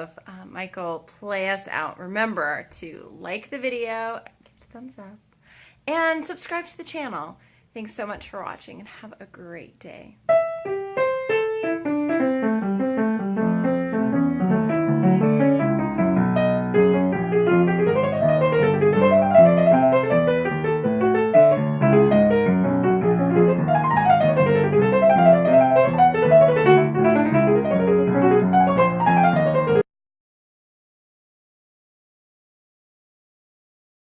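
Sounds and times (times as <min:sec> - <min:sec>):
solo piano playing: 0:10.3 - 0:29.8.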